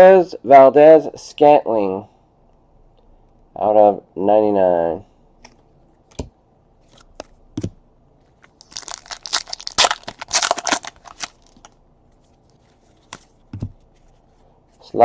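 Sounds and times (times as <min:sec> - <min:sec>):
foil wrapper tearing and crinkling: 0:08.6 - 0:11.8.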